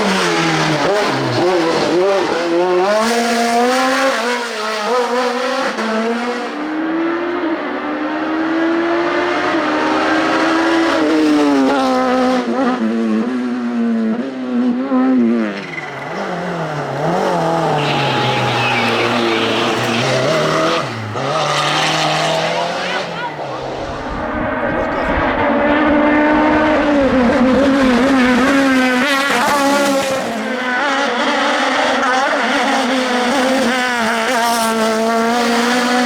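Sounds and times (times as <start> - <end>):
race car engine shifting gears: 15.4 - 36.0
tyre squeal: 15.6 - 23.6.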